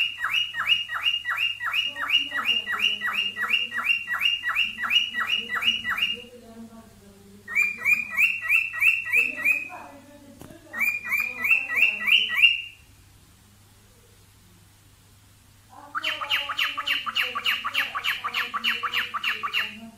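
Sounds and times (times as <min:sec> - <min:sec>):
cockatiel chirping: 0:00.0 - 0:06.3, 0:07.5 - 0:09.8, 0:10.7 - 0:12.8, 0:15.9 - 0:19.9.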